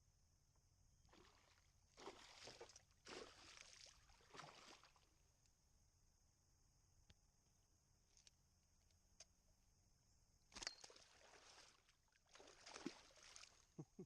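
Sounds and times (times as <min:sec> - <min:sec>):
water splashing: 0:01.1 - 0:05.0, 0:10.8 - 0:13.7.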